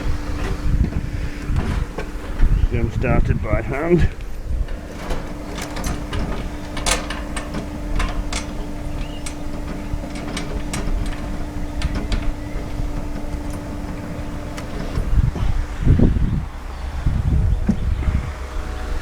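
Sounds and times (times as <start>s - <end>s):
steady low hum: 0.0s - 19.0s
metal bolts clicking and clinking: 3.8s - 15.6s.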